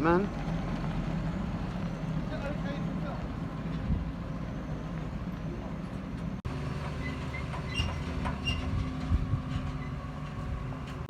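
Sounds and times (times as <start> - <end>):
tractor diesel engine running: 0.0 - 11.0
metallic squeaks and rattles: 6.8 - 11.0.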